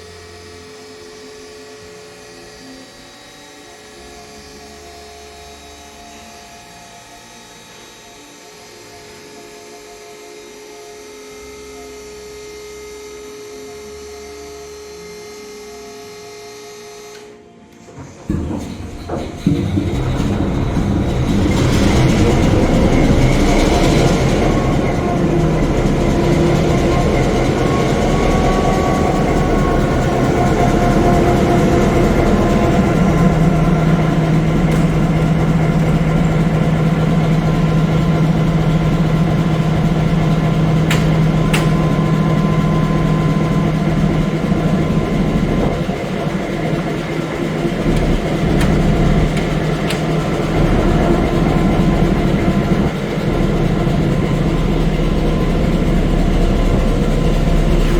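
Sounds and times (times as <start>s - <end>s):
diesel locomotive engine idling: 17.8s - 57.9s.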